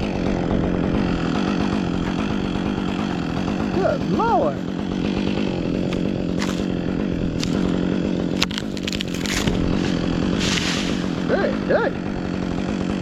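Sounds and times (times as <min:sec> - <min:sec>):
chainsaw engine idling: 0:00.0 - 0:13.0
crackling: 0:05.8 - 0:11.1.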